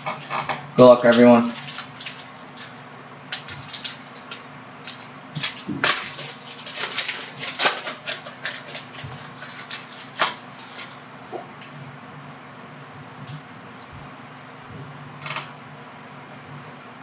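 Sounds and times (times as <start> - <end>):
wrappers torn and crinkled: 0.0 - 11.3.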